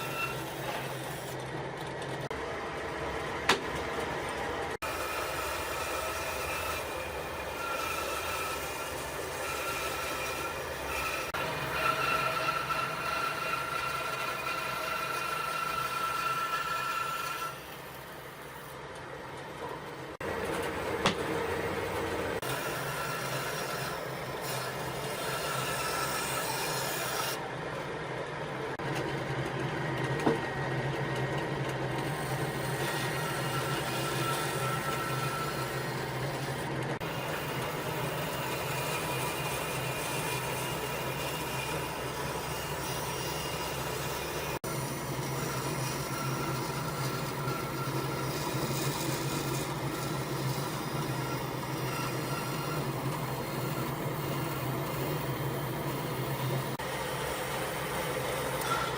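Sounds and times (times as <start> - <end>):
power tool rasping against wood: 58.4 - 58.9.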